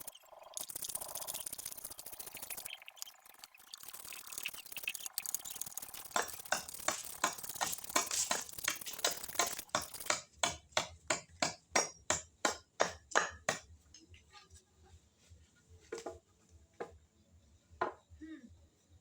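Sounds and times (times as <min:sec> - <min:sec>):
rhythmic sharp tapping: 0:04.2 - 0:13.6.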